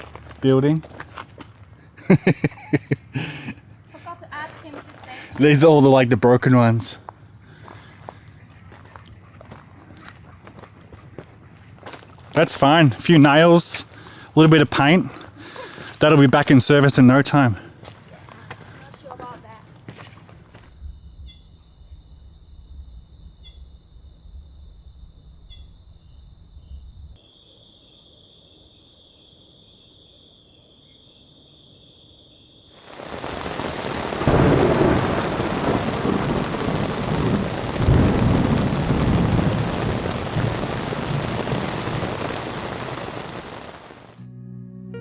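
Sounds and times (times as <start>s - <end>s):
insects chirring: 0.0s - 44.1s
heavy rain: 2.0s - 6.9s, 12.4s - 16.4s, 32.8s - 44.2s
thunder rumbling: 32.8s - 44.2s.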